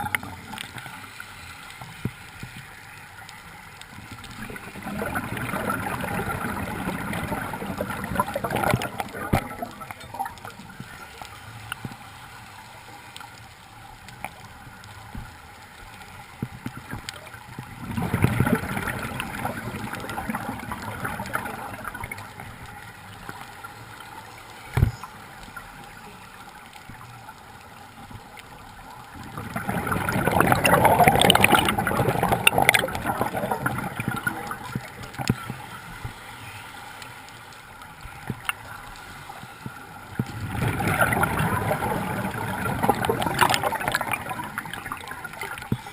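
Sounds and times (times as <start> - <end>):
water gurgling: 0.0 - 45.9.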